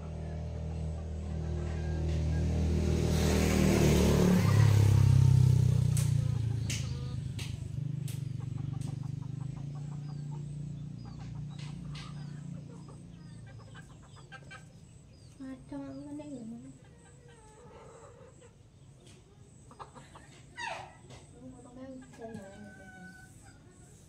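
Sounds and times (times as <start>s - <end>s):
motor vehicle passing: 0.0s - 24.0s
chickens clucking: 5.6s - 24.0s
sharp clicks: 5.9s - 9.0s.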